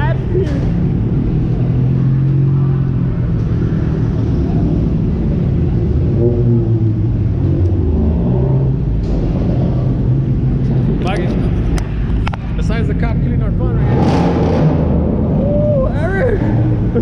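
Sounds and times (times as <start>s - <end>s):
car engines rumbling: 0.0s - 17.0s.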